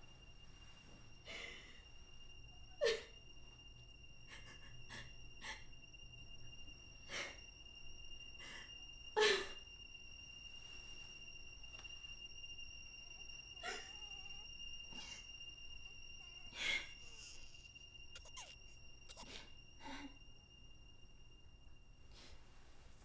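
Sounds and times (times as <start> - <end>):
faint high-pitched whine: 0.0 - 23.0
woman sobbing: 2.8 - 3.2, 4.3 - 5.8, 13.6 - 15.4.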